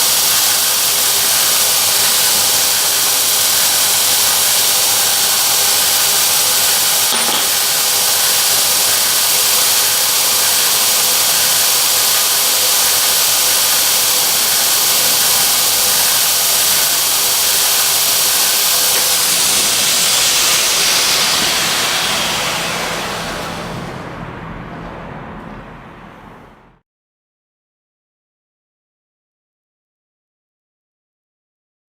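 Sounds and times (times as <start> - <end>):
belt grinder hissing: 0.0 - 24.0
faint motor hum: 0.0 - 26.8.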